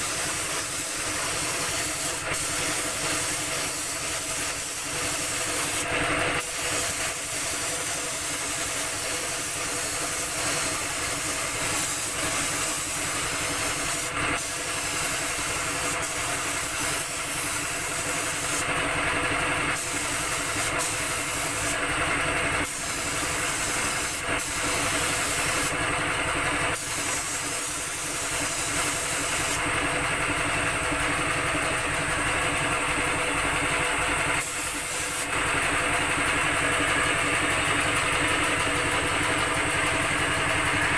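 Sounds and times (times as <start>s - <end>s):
spray gun hissing: 0.0s - 5.8s, 6.4s - 18.6s, 19.8s - 21.8s
air compressor humming: 0.0s - 40.9s.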